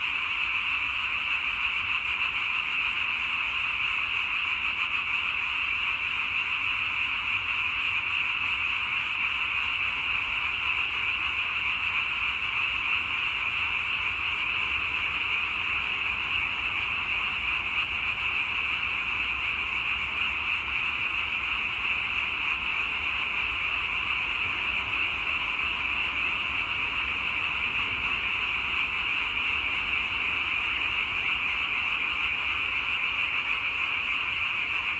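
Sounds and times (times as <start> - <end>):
chorus of frogs calling: 0.0 - 34.9.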